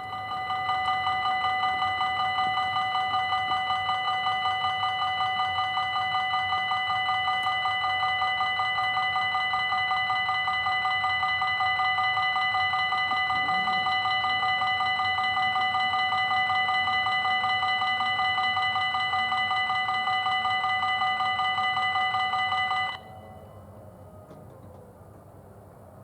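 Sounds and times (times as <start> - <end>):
level crossing warning bell: 0.0 - 24.1.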